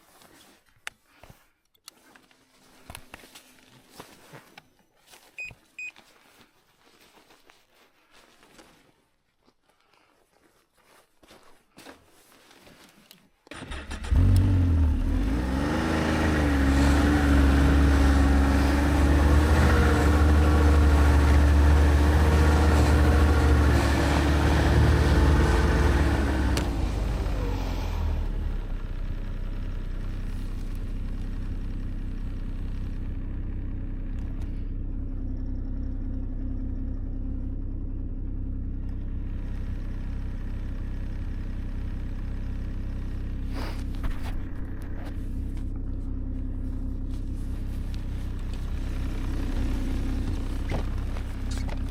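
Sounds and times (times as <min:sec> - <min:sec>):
vehicle engine starting and idling: 0:13.5 - 0:51.9.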